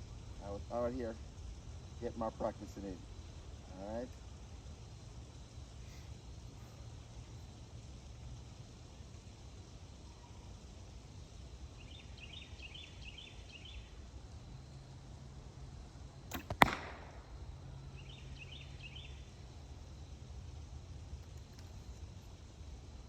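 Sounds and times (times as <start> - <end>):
arrow striking bag target: 16.3 - 17.2
bowstring release crack: 16.3 - 17.3.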